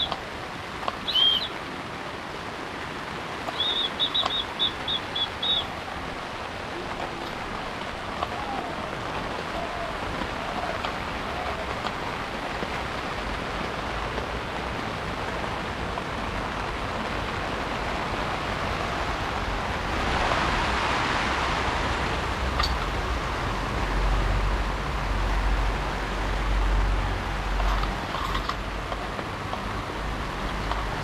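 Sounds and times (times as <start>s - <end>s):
heavy rain hissing: 0.0s - 31.0s.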